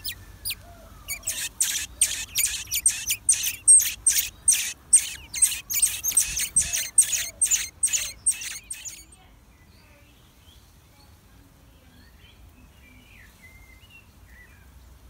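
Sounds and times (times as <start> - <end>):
nestlings raspy begging calls: 0.0 - 9.2.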